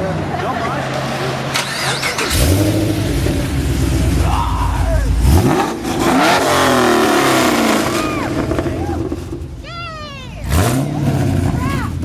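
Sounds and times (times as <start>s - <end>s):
car engine revving: 0.2s - 12.0s.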